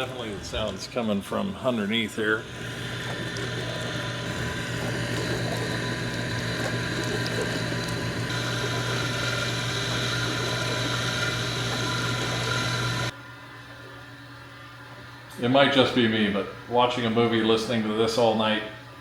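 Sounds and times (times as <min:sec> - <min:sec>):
dishwasher pump grinding: 0:01.7 - 0:13.1.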